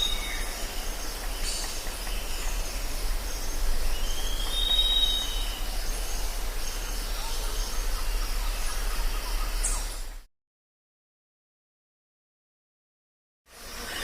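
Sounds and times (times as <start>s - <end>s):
insects chirping: 0.0s - 10.2s, 13.5s - 14.0s
low hum: 0.0s - 10.3s
long rising whistled call: 3.9s - 10.0s.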